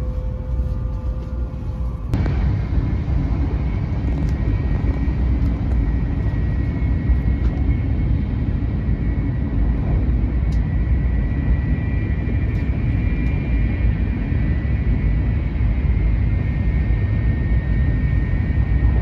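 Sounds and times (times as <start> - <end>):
faint steady whine: 0.0 - 19.0
train rumble inside carriage: 0.0 - 19.0
click: 10.5 - 10.7.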